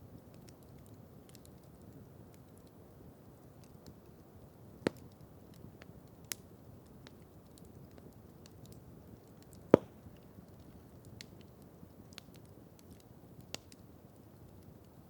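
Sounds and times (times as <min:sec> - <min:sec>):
campfire crackling: 0:00.0 - 0:15.0
loud fire pop: 0:09.8 - 0:10.0.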